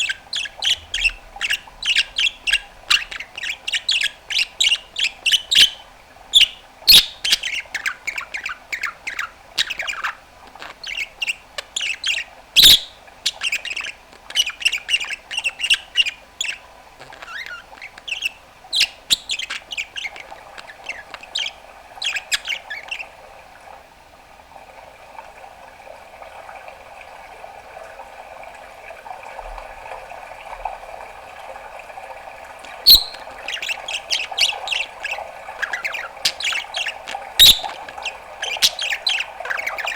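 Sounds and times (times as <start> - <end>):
budgerigar chattering: 0.0 - 23.1, 32.9 - 39.9
budgerigar low warble: 0.0 - 23.1, 32.7 - 39.9.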